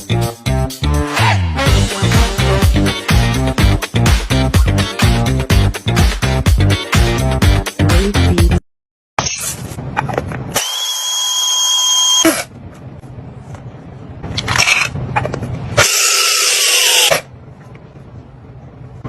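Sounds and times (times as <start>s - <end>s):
music: 0.0s - 8.6s
small electric motor running: 15.8s - 17.2s.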